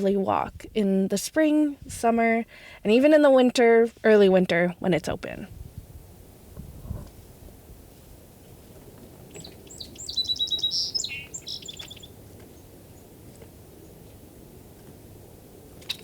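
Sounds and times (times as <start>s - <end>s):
faint outdoor background noise: 0.0s - 16.0s
songbird chirping and trilling: 9.2s - 13.2s.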